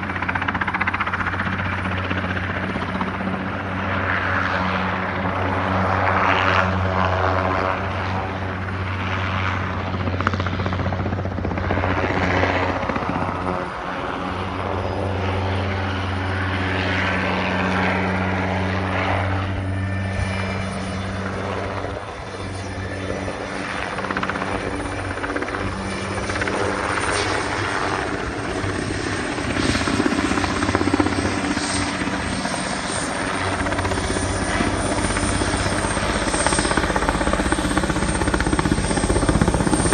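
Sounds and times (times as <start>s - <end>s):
helicopter rotor drone: 0.0s - 39.9s.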